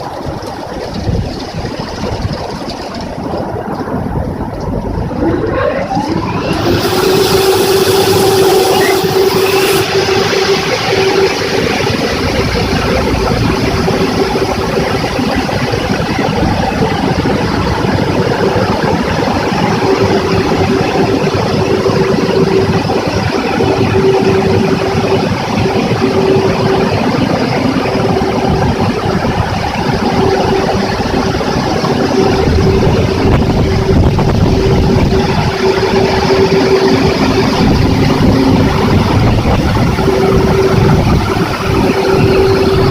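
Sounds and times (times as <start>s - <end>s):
car wash machine running: 0.0s - 42.9s.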